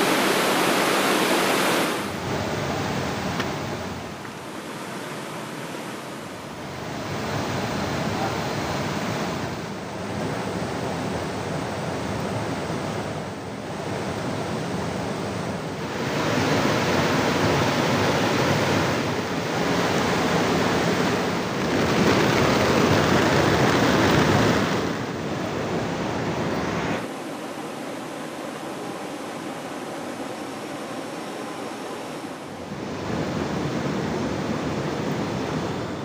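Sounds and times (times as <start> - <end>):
roar of rushing water: 0.0 - 12.1, 15.7 - 27.2.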